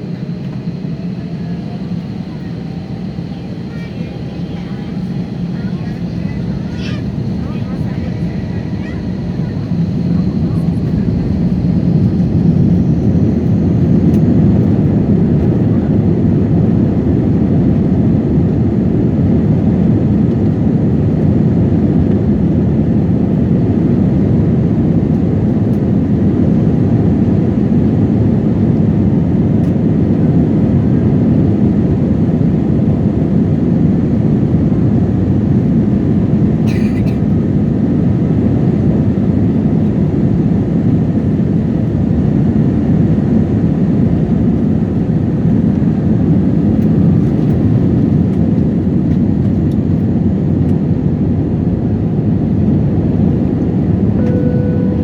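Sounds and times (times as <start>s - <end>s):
jet airliner cabin rumble: 0.0s - 55.0s
brief click: 54.2s - 55.0s.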